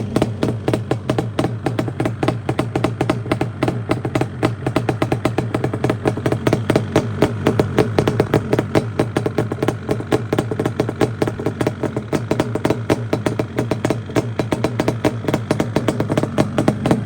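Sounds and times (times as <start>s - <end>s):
two-stroke engine idling: 0.0s - 17.0s.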